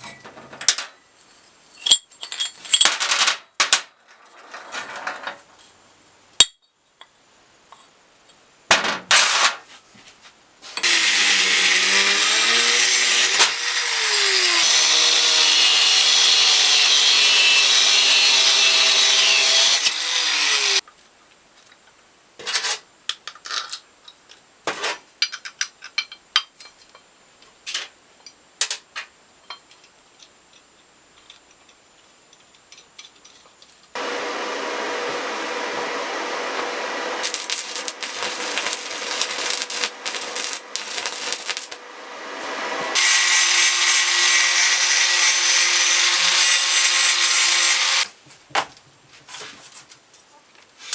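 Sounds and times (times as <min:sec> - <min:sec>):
power tool running: 0:10.8 - 0:20.8, 0:34.0 - 0:48.1
clicks of handling metal parts: 0:22.5 - 0:24.4.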